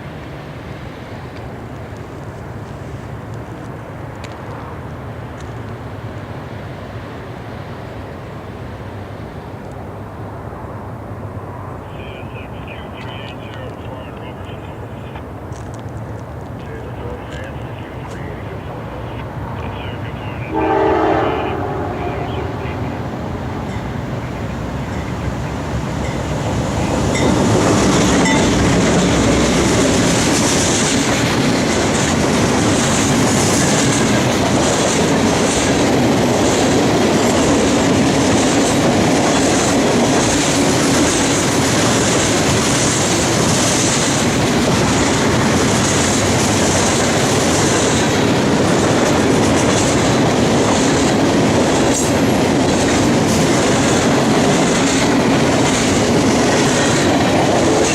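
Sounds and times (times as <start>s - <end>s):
train passing close by: 0.0s - 57.9s
wheels clacking over rail joints: 23.4s - 57.9s.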